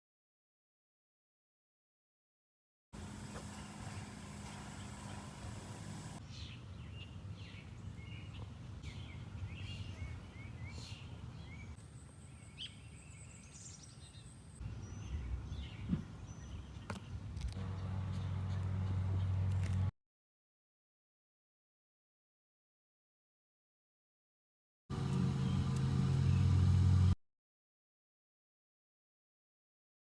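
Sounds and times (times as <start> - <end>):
wild birds chirping: 3.0 - 19.4
low hum: 24.9 - 27.2.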